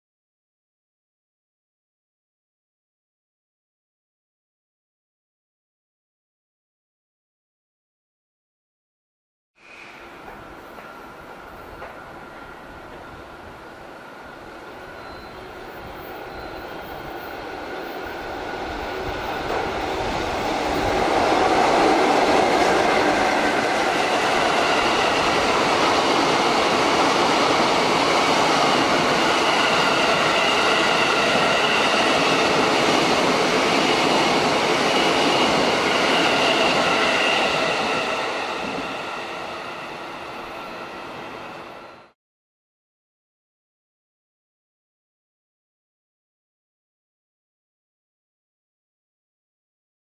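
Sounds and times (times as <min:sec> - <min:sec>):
train wheels rumbling and clattering: 0:10.2 - 0:13.6, 0:16.8 - 0:41.6.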